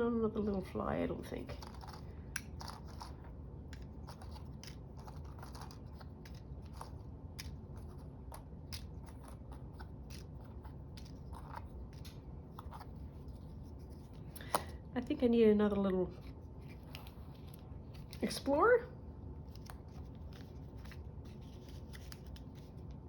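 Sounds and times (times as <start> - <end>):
paper handling clicks: 19.4 - 23.0.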